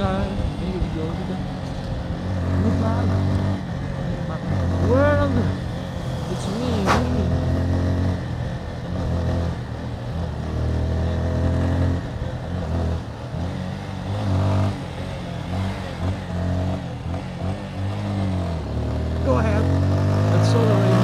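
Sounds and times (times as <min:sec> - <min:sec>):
motorcycle engine revving: 0:00.0 - 0:21.0
steady rushing noise: 0:05.4 - 0:08.9.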